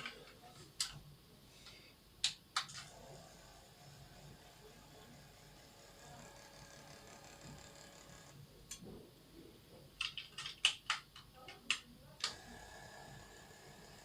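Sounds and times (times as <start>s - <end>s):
motorised curtain drive humming: 2.8s - 8.4s, 12.3s - 14.0s.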